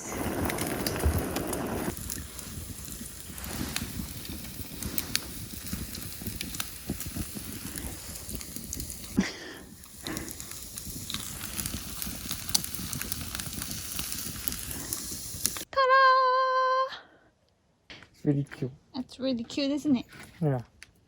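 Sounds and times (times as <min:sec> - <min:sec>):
wood fire crackling and popping: 0:00.0 - 0:15.7.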